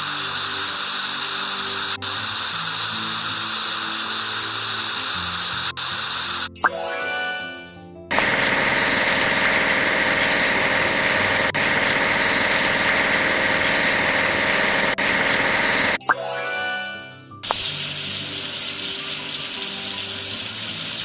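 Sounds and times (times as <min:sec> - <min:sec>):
construction machine engine: 0:08.1 - 0:16.0.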